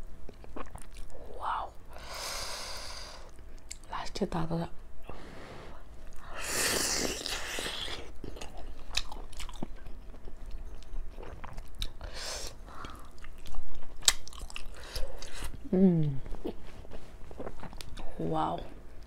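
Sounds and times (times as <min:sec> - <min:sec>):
wet chewing and smacking: 0:00.2 - 0:01.1, 0:07.2 - 0:12.0, 0:12.7 - 0:15.6, 0:16.2 - 0:18.1.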